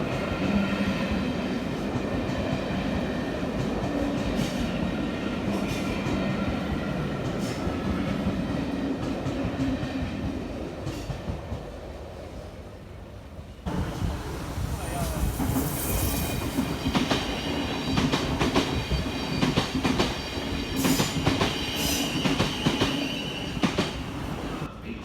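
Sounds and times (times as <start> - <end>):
train rumbling past: 0.0 - 25.0
faint train whine: 10.0 - 25.0.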